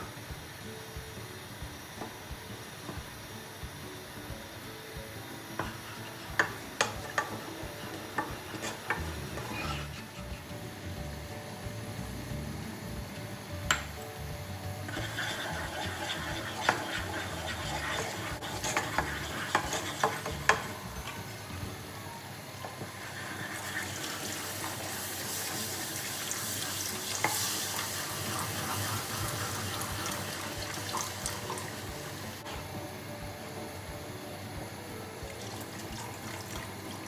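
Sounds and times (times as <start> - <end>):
wooden spoon scraping a saucepan: 5.6 - 10.5, 14.9 - 20.8.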